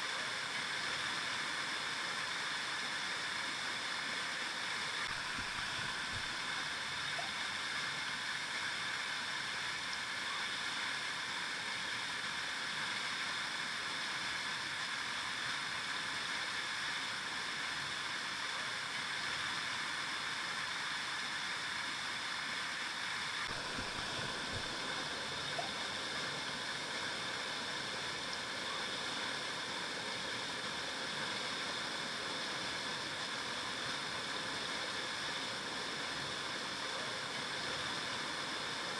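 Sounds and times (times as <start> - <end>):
river water flowing: 23.0 - 38.9.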